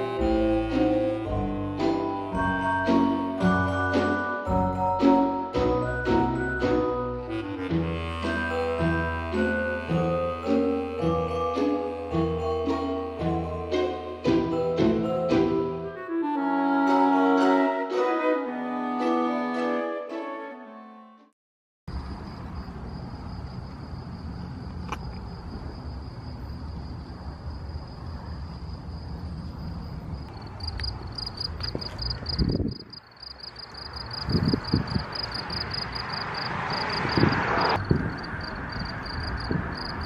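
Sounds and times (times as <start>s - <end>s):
insects trilling: 21.9s - 40.0s.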